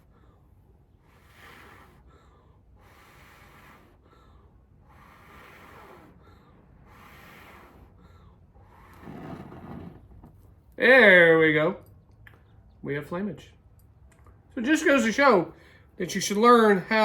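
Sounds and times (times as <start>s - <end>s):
person blowing on tinder: 0.0s - 10.1s.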